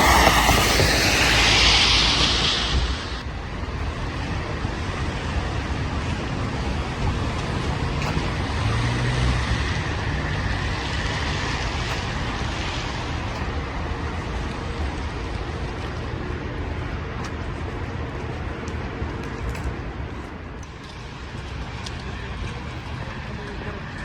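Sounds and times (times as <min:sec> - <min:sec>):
low engine rumble: 0:00.0 - 0:24.0
vehicles passing: 0:00.0 - 0:24.0.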